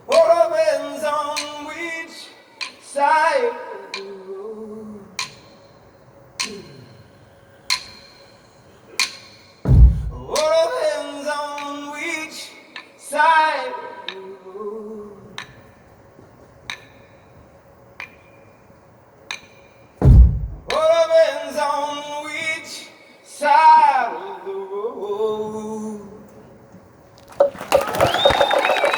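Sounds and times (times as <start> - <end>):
man singing a cappella: 0.1 - 5.4, 10.1 - 15.5, 20.7 - 26.4
heavy low thump: 9.7 - 10.4, 20.0 - 20.8.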